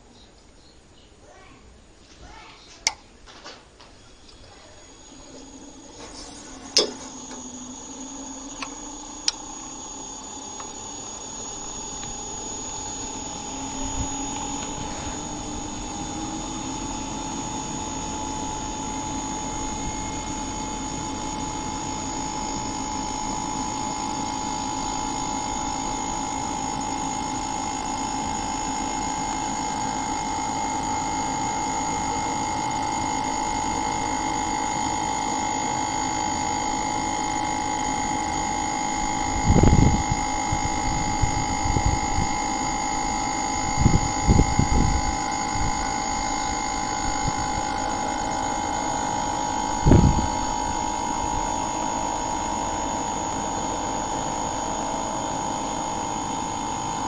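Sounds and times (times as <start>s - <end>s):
motor humming: 3.8s - 57.0s
switch click: 6.7s - 7.4s.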